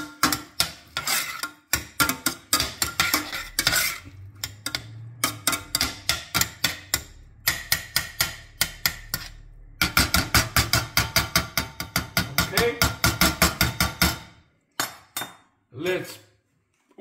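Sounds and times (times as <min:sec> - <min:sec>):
garlic and onion frying in oil: 0:00.0 - 0:12.3
utensil scraping pan: 0:00.0 - 0:15.0.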